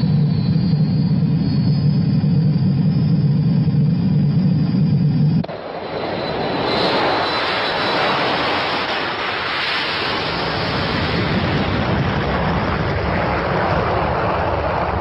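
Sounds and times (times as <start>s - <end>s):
jet engine rushing: 0.0s - 15.0s.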